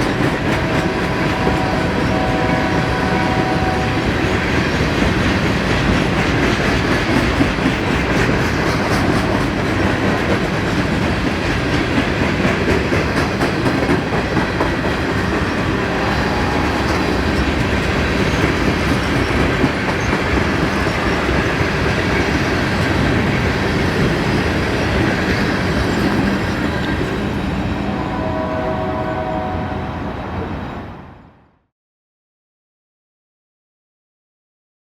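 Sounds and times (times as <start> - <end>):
freight train passing: 0.0 - 31.6.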